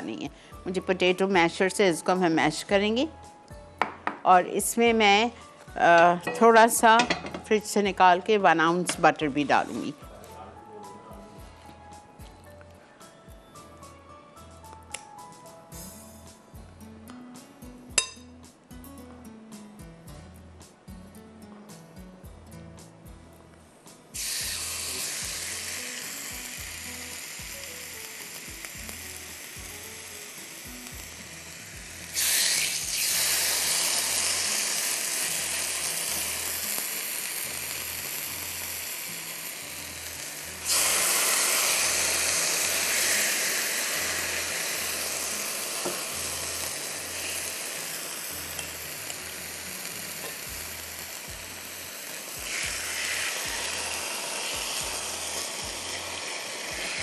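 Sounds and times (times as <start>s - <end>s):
faint background music with beat: 0.0s - 57.0s
chicken sizzling in grill pan: 24.2s - 57.0s.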